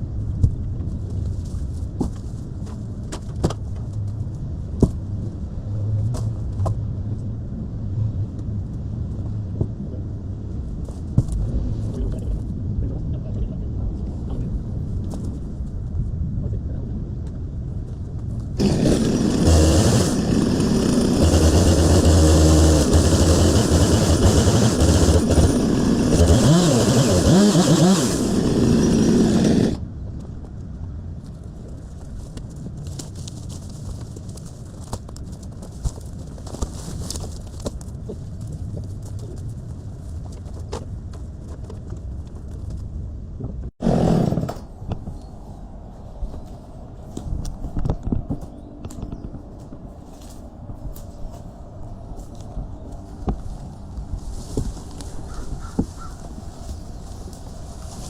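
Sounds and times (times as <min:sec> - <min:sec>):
chainsaw running and revving: 0:18.6 - 0:29.8, 0:43.8 - 0:44.5.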